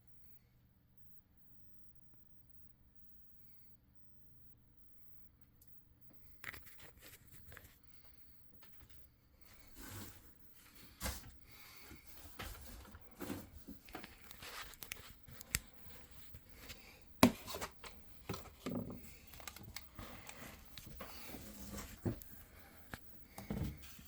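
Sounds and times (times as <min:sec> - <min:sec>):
handling clicks and rubbing: 0:12.4 - 0:16.8.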